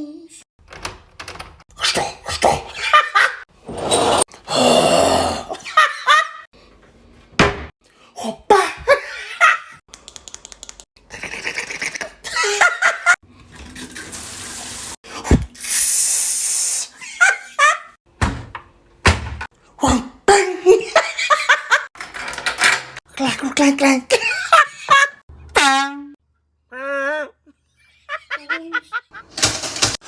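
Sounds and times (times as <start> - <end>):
squeaky vocal noises: 1.7 - 2.8
mouth hisses: 15.5 - 17.0.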